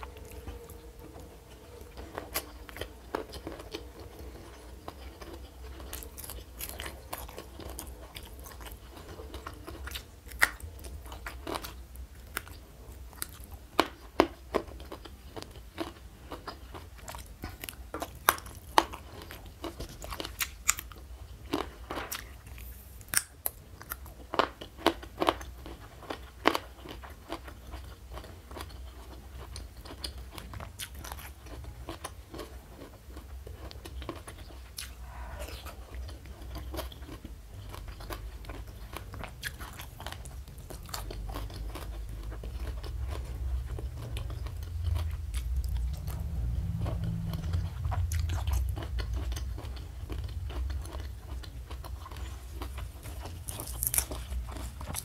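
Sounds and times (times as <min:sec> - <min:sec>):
chewing crunchy food: 0:00.0 - 0:55.0.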